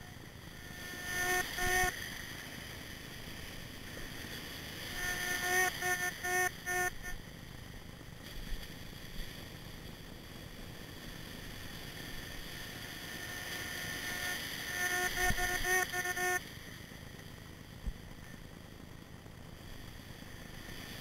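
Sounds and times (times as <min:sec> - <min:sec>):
steady background hiss: 0:00.0 - 0:21.0
metal detector low beeps: 0:04.9 - 0:07.2.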